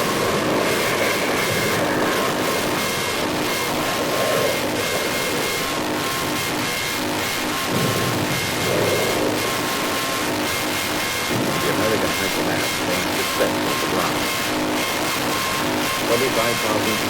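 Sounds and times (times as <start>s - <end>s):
distorted noise wall: 0.0s - 17.0s.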